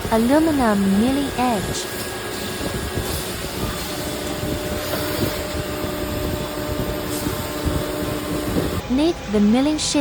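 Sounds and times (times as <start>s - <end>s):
milling machine cutting metal: 0.0s - 8.8s
faint steady whine: 0.0s - 10.0s.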